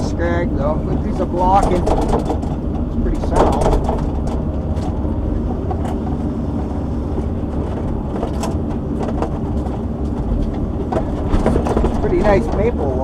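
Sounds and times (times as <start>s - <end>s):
diesel engine running: 0.0s - 13.0s
machine clicks and knocks: 0.9s - 5.0s.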